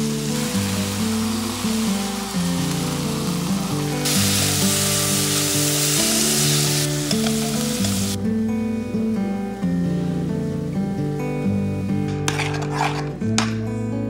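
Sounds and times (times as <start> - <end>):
vegetables sizzling in oil: 0.0 - 8.2
background music with low notes: 0.0 - 14.0.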